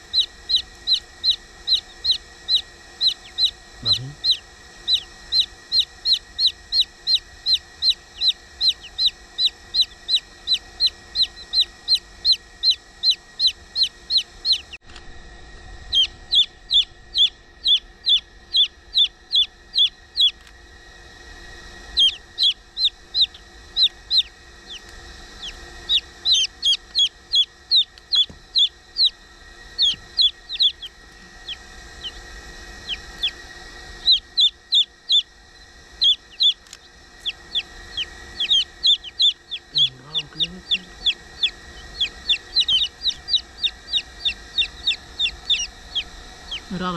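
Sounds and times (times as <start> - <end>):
chicks peeping: 0.0 - 14.8, 15.8 - 20.5, 21.9 - 46.9.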